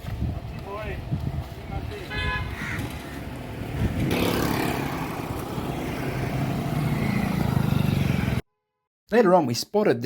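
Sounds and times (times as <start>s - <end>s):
vehicle passing on road: 0.8s - 8.4s.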